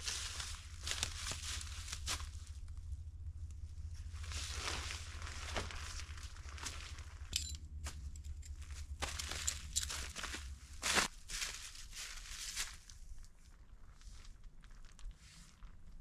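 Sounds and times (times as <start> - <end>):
crunching footsteps on snow: 0.0 - 2.6, 4.1 - 13.0
steady low rumble: 0.0 - 16.0.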